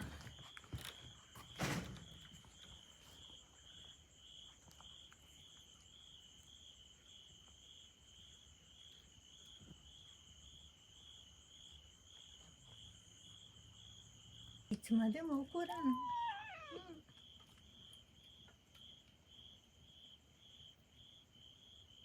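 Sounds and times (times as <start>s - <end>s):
insect chirping: 0.1s - 22.0s.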